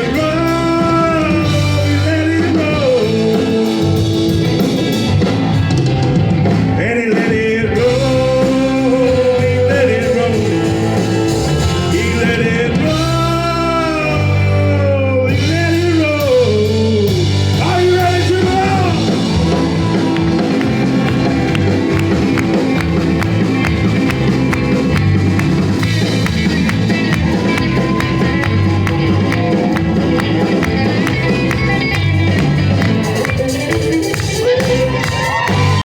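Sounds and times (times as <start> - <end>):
lead vocal singing: 0.0 - 4.9, 6.7 - 22.5
live rock band playing: 0.0 - 35.8.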